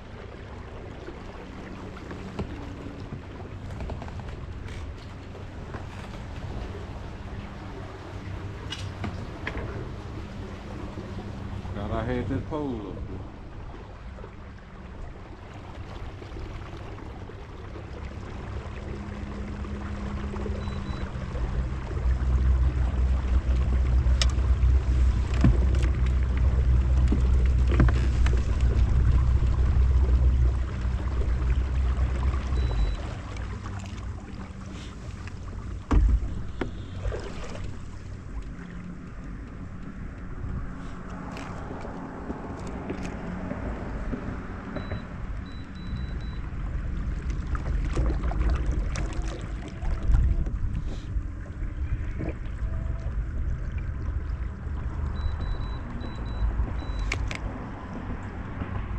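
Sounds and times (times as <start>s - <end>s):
low steady hum: 0.0s - 58.9s
water lapping against kayak: 0.0s - 58.9s
wind rumble on microphone: 0.0s - 58.9s
knocks and bumps on kayak: 25.1s - 26.1s, 27.0s - 29.0s, 35.8s - 37.7s.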